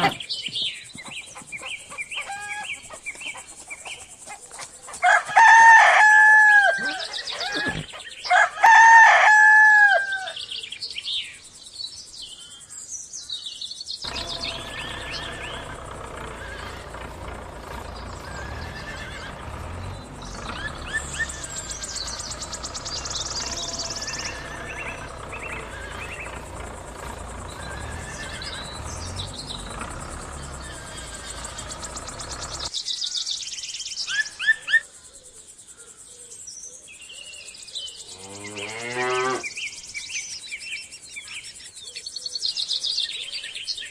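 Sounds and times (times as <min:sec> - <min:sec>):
small birds chirping: 0:00.0 - 0:09.2, 0:10.1 - 0:43.9
rooster crowing: 0:05.0 - 0:10.4, 0:14.1 - 0:31.8
low hum: 0:14.1 - 0:32.7.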